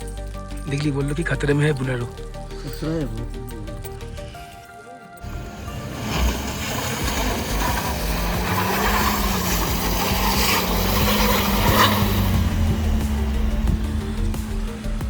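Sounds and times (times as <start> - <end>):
tyres rasping on snowy road: 5.2 - 15.0
vehicle engine drone: 5.2 - 15.0.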